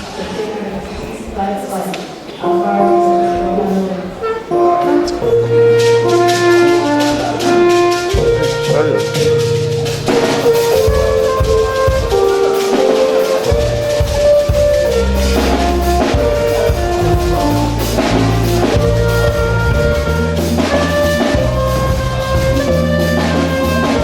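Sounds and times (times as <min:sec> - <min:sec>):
held melody notes: 0:01.7 - 0:24.0
drum kit beat: 0:02.2 - 0:24.0
bass line: 0:04.4 - 0:24.0.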